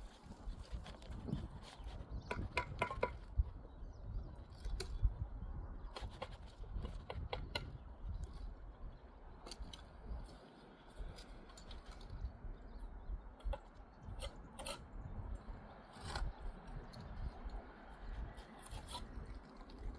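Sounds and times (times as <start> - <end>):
clicks and scrapes of masonry work: 0.0 - 3.6, 4.4 - 5.2, 5.8 - 8.6, 9.3 - 12.3, 13.4 - 19.9.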